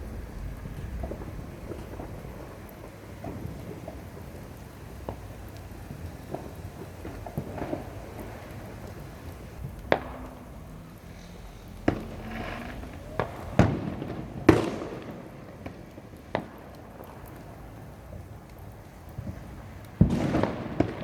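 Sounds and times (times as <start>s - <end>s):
low rumble: 0.0s - 3.0s
fireworks bangs: 0.0s - 21.0s.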